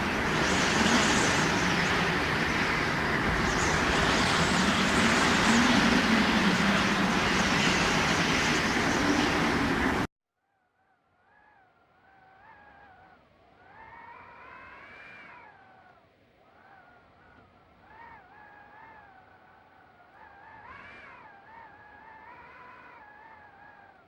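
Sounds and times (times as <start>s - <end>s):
faint low wind moan: 0.0s - 10.1s
gusty wind rushing: 0.0s - 10.1s
whistling wind howl: 0.0s - 10.1s, 12.0s - 24.0s.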